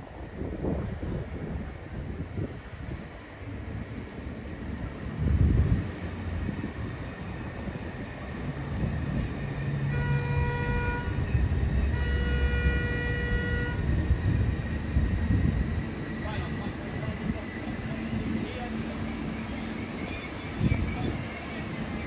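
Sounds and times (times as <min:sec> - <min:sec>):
low rumble of a train: 0:00.0 - 0:22.0
train horn blasts: 0:09.8 - 0:14.3.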